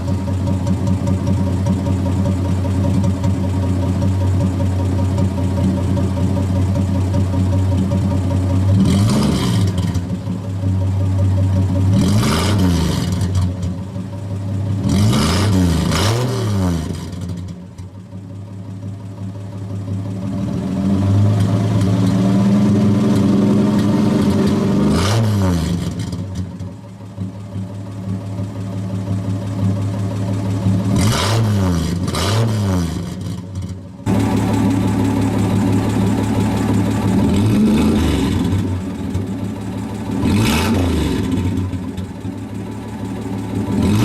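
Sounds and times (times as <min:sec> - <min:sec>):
engine idling without muffler: 0:00.0 - 0:24.9, 0:25.6 - 0:44.0
engine throttle blips: 0:19.1 - 0:44.0.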